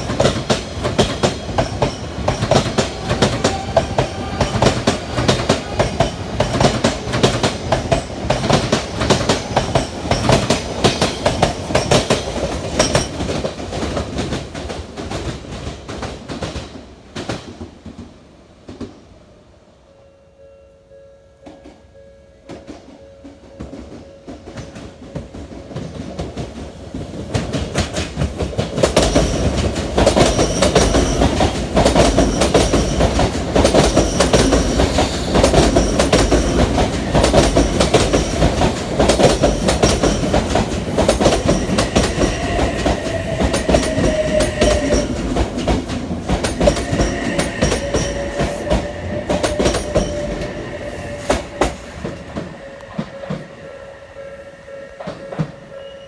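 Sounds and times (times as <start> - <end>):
train wheels over rail joints: 0.0 - 19.2, 22.4 - 56.0.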